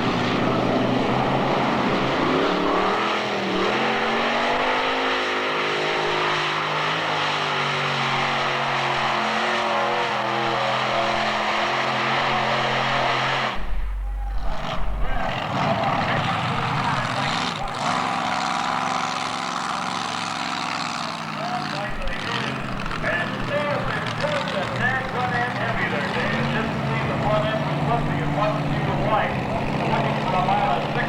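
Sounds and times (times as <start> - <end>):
tractor engines running hard: 0.0 - 31.0
brief low rumble: 13.6 - 15.5.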